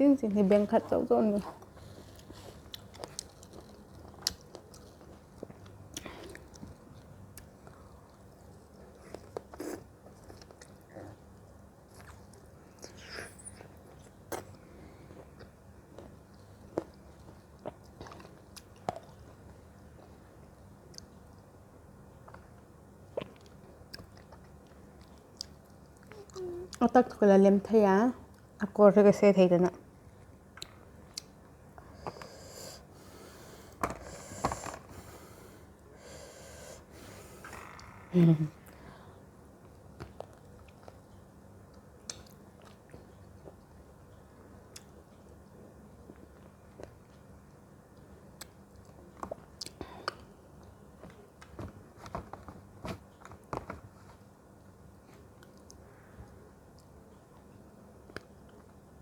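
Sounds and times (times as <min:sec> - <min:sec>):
person chewing fruit: 0:01.5 - 0:20.1, 0:22.2 - 0:26.8, 0:40.0 - 0:43.8
breaths through the nose: 0:32.0 - 0:37.5.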